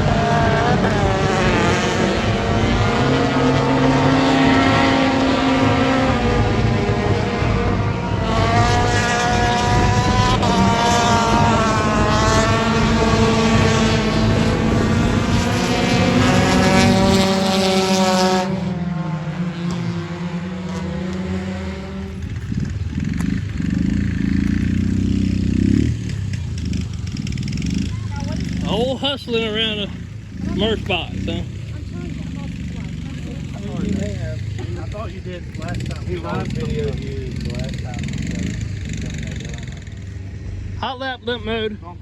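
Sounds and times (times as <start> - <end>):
race car engine revving: 0.0 - 42.0.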